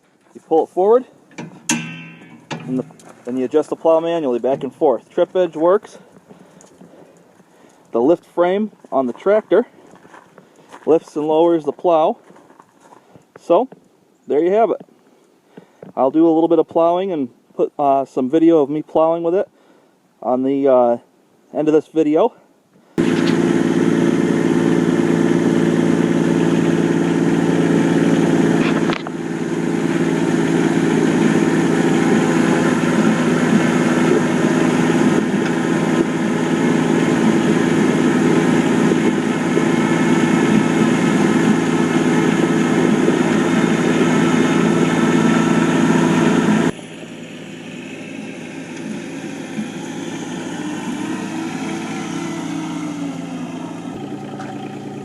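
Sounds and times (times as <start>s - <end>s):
tractor diesel engine running: 0.0s - 11.8s, 23.0s - 55.0s.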